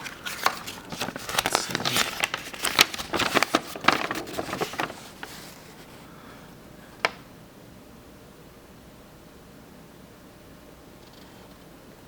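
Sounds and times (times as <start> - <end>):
packaging crinkling: 0.0 - 5.8.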